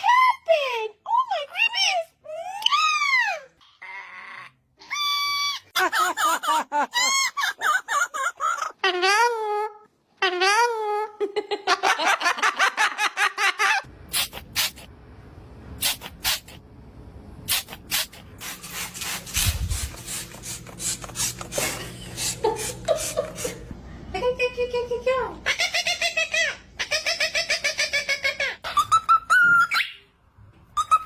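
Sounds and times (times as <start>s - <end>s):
parrot calling: 25.4s - 30.1s.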